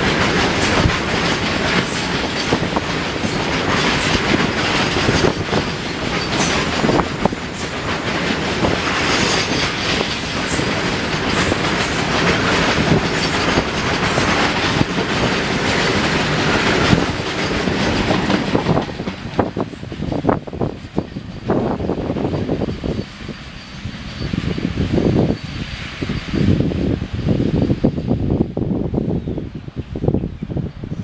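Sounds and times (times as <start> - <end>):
freight wagons rolling on rails: 0.0 - 24.3.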